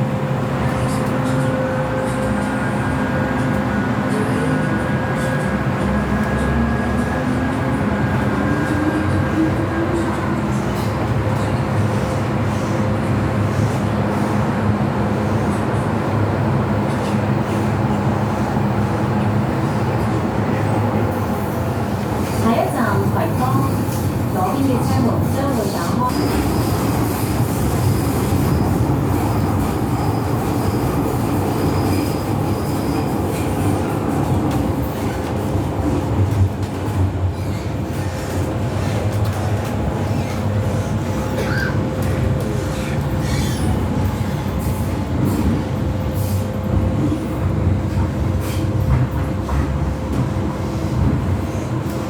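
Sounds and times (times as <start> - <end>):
train wheels on track: 0.0 - 52.0
wheels squealing: 42.7 - 43.8.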